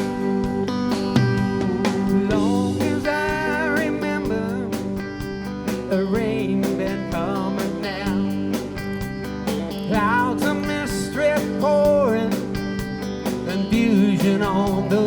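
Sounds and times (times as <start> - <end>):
band playing country-rock: 0.0 - 15.0
strummed guitar chords: 0.0 - 15.0.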